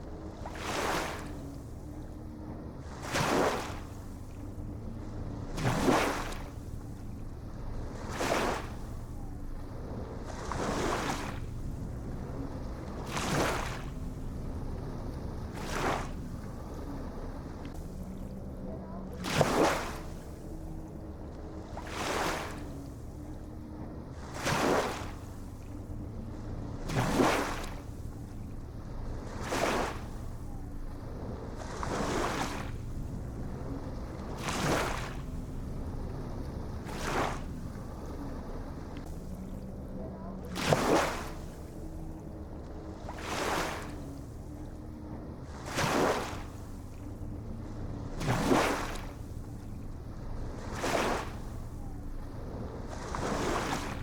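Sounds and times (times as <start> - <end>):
low rumble of surf: 0.0 - 54.0
ocean waves washing in: 0.0 - 54.0
steady low rumble: 27.7 - 40.5.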